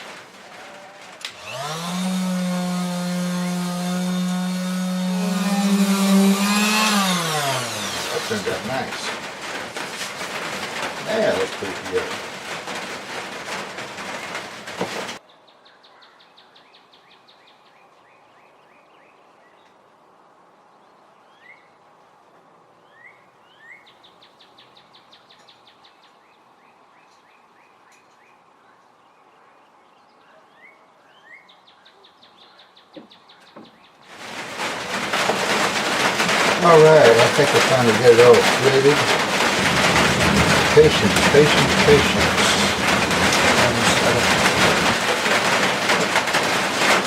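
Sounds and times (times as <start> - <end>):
loud noise: 0.0 - 15.2, 34.1 - 47.0
small birds singing: 14.2 - 19.9, 20.5 - 21.8, 22.8 - 34.1.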